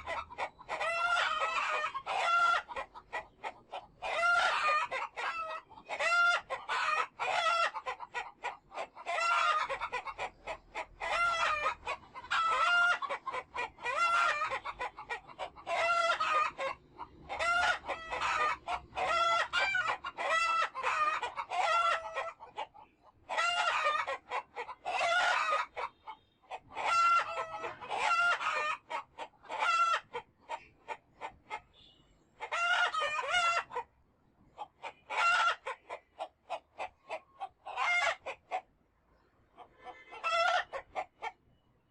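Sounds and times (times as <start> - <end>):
roosters crowing: 0.0 - 2.8, 4.0 - 8.0, 10.8 - 14.8, 15.5 - 22.4, 24.9 - 26.2, 26.8 - 28.9
chickens clucking: 0.0 - 41.6.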